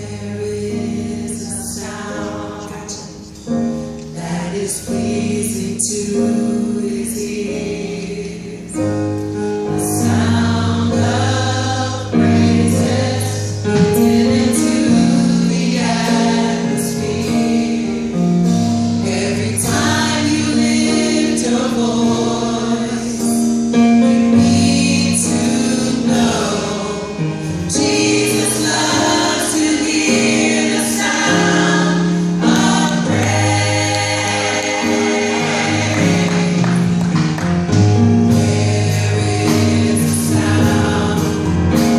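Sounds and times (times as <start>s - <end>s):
gospel choir singing: 0.0s - 41.9s
percussion hits: 13.6s - 14.8s, 32.5s - 41.9s.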